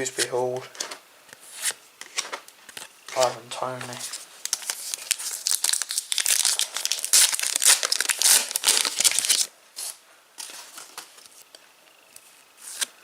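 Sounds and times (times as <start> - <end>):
foil wrapper crinkling and tearing: 4.1 - 9.5.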